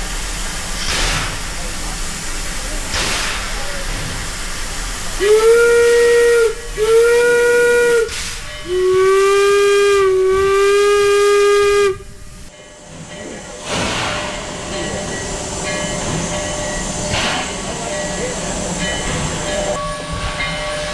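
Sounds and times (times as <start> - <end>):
steam hissing: 0.0 - 12.5, 13.6 - 20.9
steam locomotive whistle: 5.0 - 12.5.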